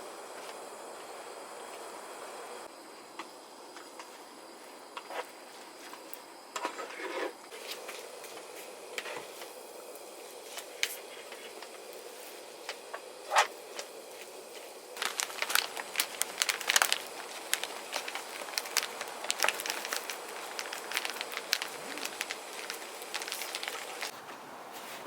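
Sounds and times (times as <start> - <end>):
wood fire crackling: 7.5 - 24.8.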